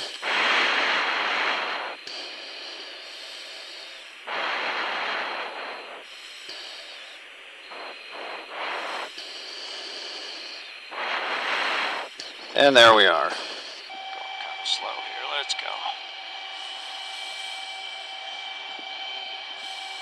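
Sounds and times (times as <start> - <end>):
background hiss: 0.0 - 20.0
breathing through oxygen mask: 0.0 - 20.0.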